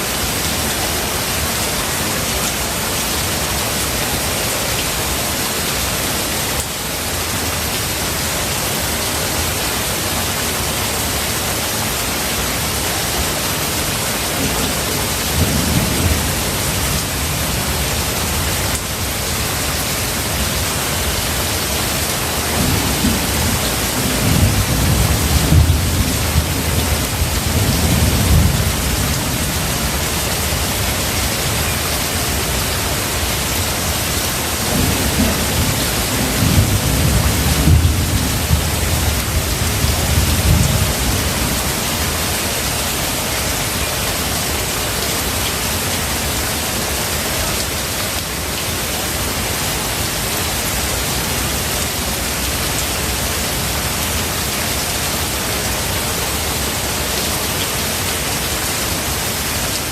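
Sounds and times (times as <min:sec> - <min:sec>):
heavy rain: 0:00.0 - 0:59.9
thunder rumbling: 0:22.3 - 0:31.6, 0:34.0 - 0:41.7.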